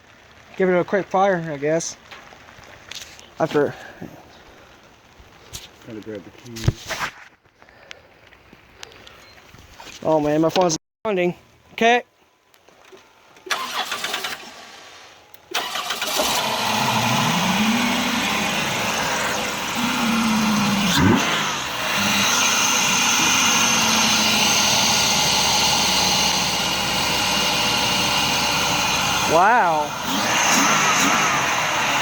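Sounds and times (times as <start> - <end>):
car engine cranking and revving: 13.4 - 14.8, 15.4 - 32.0.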